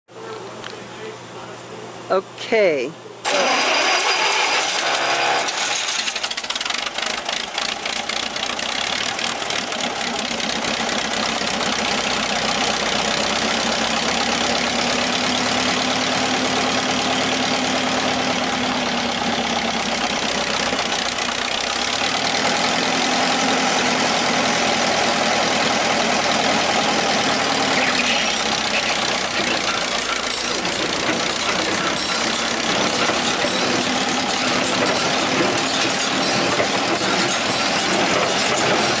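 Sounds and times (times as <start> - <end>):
hay baler engine running: 3.2 - 39.0
clattering: 3.4 - 8.6, 27.6 - 39.0.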